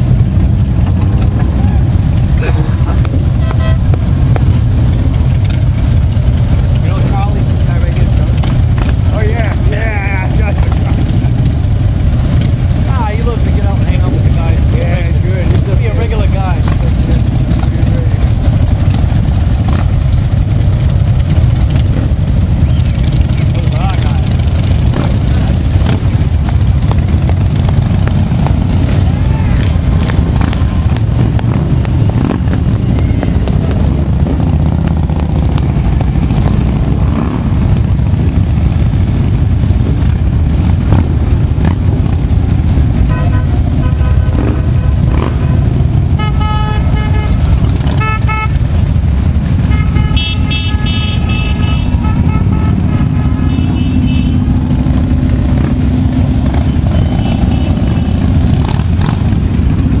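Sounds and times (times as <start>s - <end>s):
motorcycle engines rumbling: 0.0s - 60.0s
horns tooting: 3.0s - 4.9s, 28.2s - 34.0s, 42.9s - 59.3s.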